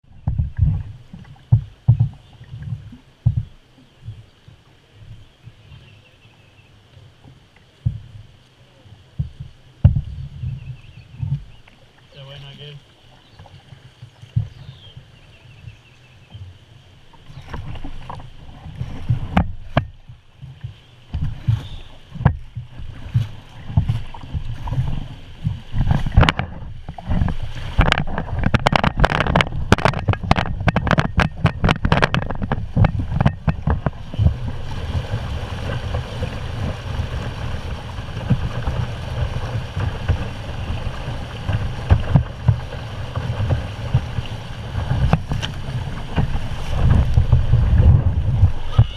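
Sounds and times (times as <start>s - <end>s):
wind on microphone: 0.0s - 6.1s, 9.0s - 11.6s, 13.2s - 48.9s
paddle splashes and knocks: 0.0s - 6.2s, 6.9s - 48.9s
rushing water: 0.0s - 48.9s.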